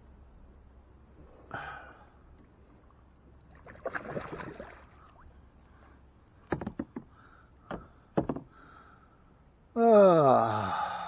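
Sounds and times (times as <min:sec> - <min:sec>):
water splashing around kayak: 0:03.5 - 0:05.3
knocks against kayak hull: 0:06.5 - 0:07.1, 0:07.7 - 0:08.5.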